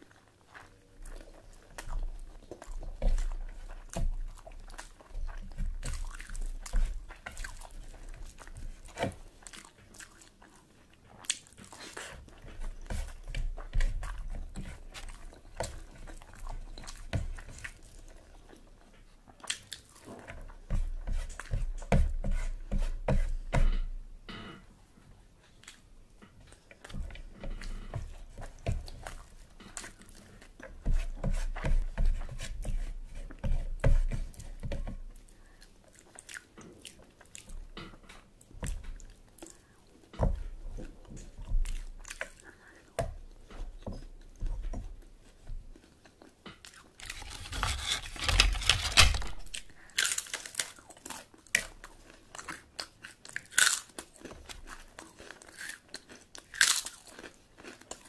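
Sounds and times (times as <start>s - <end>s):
chewing and wet mouth smacks: 0.1s - 20.6s, 35.4s - 40.1s
crunching crisp food: 45.8s - 58.0s.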